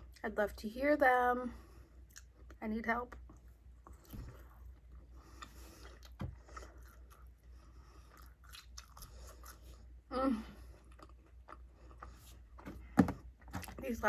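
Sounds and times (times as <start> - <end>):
chewing fries: 2.0 - 12.7.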